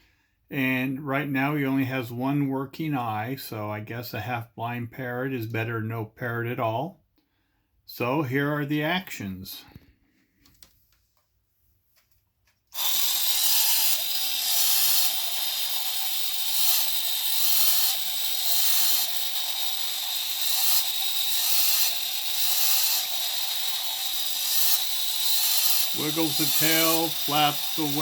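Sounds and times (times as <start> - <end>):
toy motor and gears whirring: 12.7 - 28.0.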